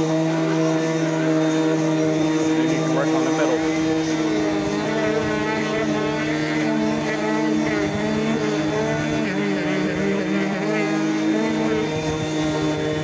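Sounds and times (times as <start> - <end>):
orbit sander sanding wood: 0.0 - 13.0.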